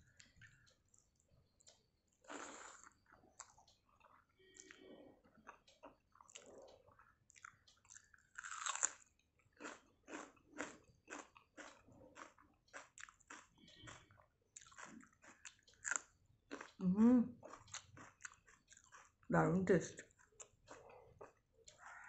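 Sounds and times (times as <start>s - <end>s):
person chewing: 0.0s - 19.3s, 20.0s - 22.0s
crunching bite: 7.9s - 14.0s.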